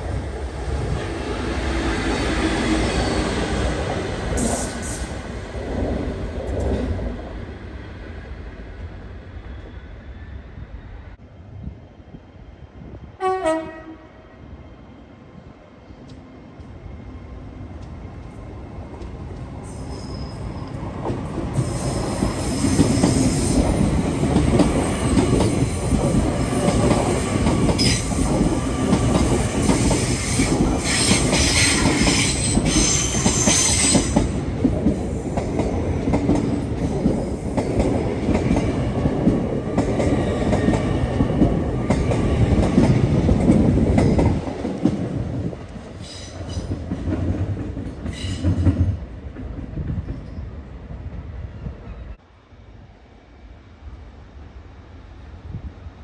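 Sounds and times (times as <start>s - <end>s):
train wheels rumbling on rail: 0.0s - 14.3s, 15.4s - 52.2s
high wheel squeal: 19.7s - 20.7s.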